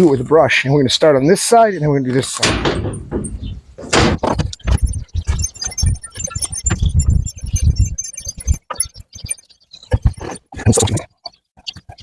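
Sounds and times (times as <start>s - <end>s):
rustling and knocking: 2.4s - 4.8s.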